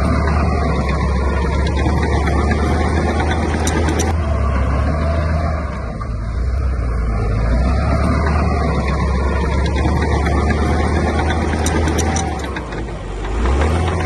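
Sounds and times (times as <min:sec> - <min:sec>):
diesel engine deep rumble: 0:00.0 - 0:14.0
faint clicks: 0:07.9 - 0:14.0.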